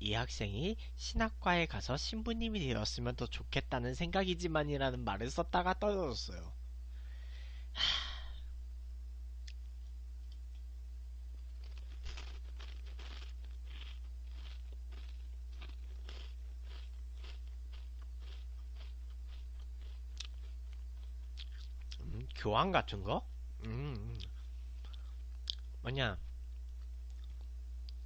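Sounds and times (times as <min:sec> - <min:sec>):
low electrical hum: 0:00.0 - 0:28.0
chewing crunchy crackers: 0:11.3 - 0:22.4, 0:24.0 - 0:25.8, 0:26.5 - 0:28.0.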